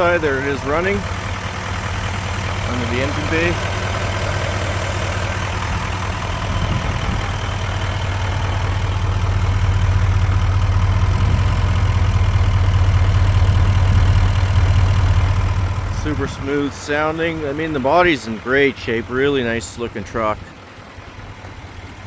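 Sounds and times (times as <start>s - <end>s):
pickup truck engine idling: 0.0s - 22.0s.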